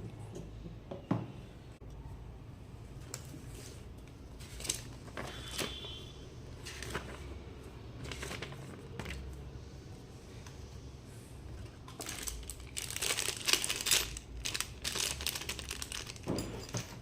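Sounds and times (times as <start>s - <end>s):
packaging being handled: 11.9s - 16.8s.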